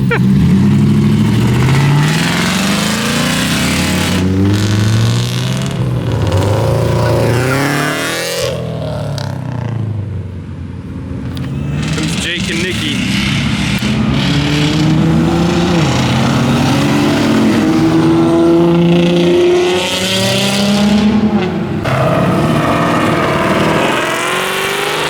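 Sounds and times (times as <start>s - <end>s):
car engines accelerating past: 0.0s - 10.2s, 11.3s - 25.0s.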